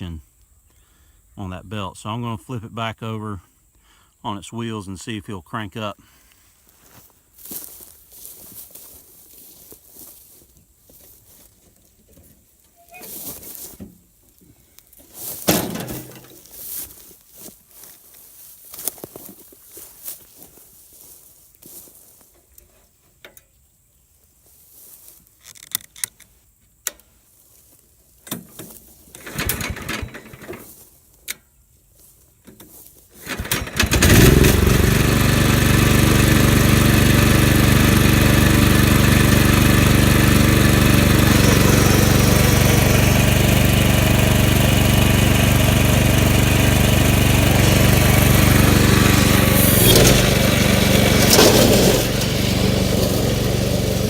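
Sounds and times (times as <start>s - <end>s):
mower engine running: 15.2s - 16.8s, 29.2s - 30.7s, 33.2s - 54.0s
knocks and clanks of handling: 15.4s - 16.4s.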